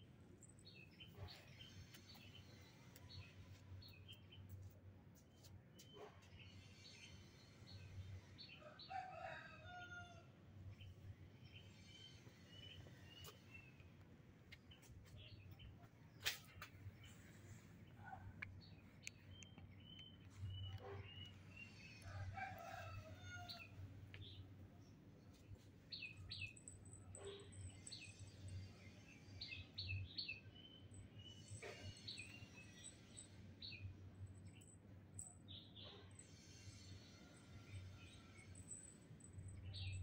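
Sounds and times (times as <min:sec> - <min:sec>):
faint small birds chirping: 0:10.8 - 0:40.0.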